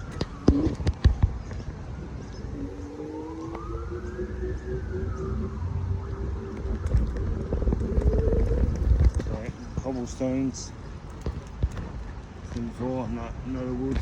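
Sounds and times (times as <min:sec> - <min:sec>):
emergency siren wailing: 0:00.0 - 0:09.4
low steady rumble: 0:00.0 - 0:14.0.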